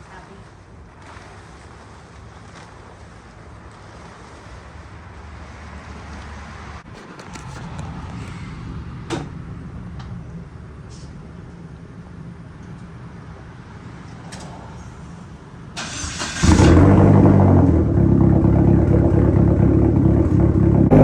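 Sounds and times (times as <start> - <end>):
engine clicks: 15.8 - 17.2
turbo car engine running: 16.1 - 21.0.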